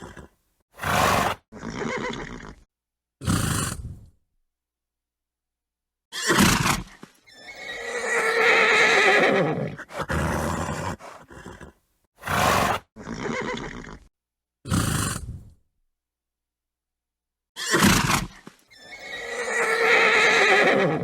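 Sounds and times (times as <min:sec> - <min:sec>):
horse snorting: 0:00.0 - 0:02.6, 0:03.2 - 0:04.1, 0:06.3 - 0:14.1, 0:14.7 - 0:15.6
horse whinnying: 0:00.0 - 0:02.6, 0:06.1 - 0:14.1, 0:17.6 - 0:21.0.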